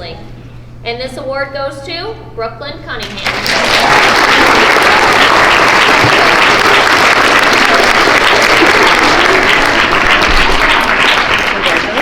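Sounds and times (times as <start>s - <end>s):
children applauding: 3.2s - 12.0s.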